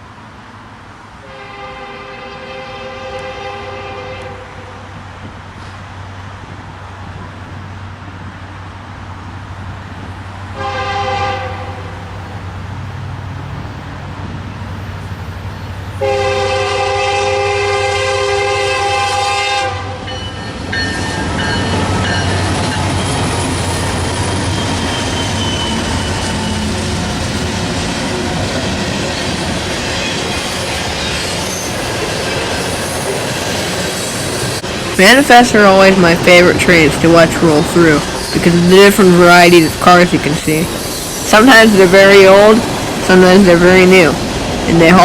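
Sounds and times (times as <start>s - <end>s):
low locomotive rumble: 0.0s - 45.0s
train wheel noise: 0.0s - 45.0s
locomotive air horn: 1.2s - 4.9s, 10.5s - 12.0s, 16.0s - 20.3s.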